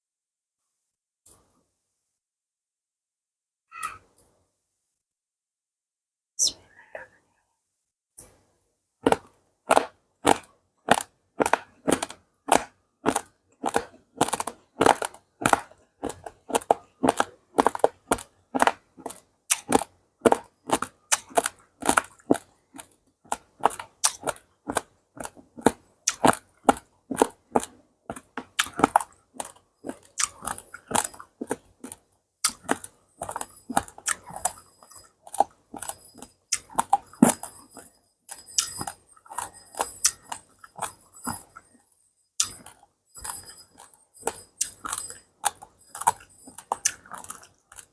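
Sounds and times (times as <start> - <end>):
person chewing crunchy grains: 9.0 - 41.8, 42.4 - 47.9.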